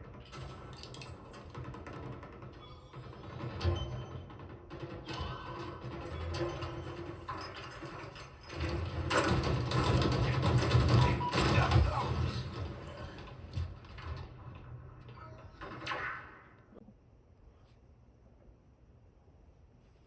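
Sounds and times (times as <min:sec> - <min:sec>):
mechanical clanking and ratcheting: 0:00.0 - 0:16.0.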